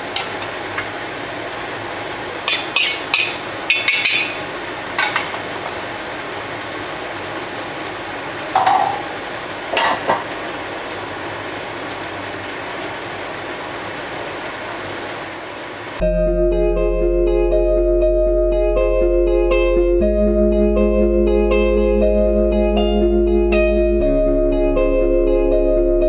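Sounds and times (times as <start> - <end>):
stir-fry sizzling in a pan: 0.0 - 16.0
metal spatula scraping a pan: 2.5 - 4.4.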